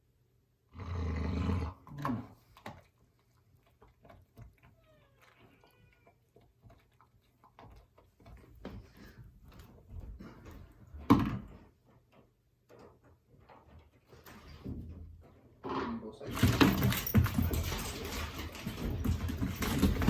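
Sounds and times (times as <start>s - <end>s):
dog growling: 0.7s - 2.5s
dog whining: 4.6s - 6.4s.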